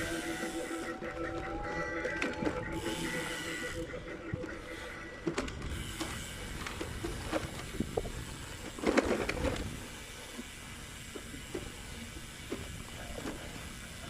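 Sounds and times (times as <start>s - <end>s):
low wind rumble: 0.0s - 10.2s
bicycle tyre noise: 0.0s - 14.0s
bicycle clicks and rattles: 4.6s - 14.0s.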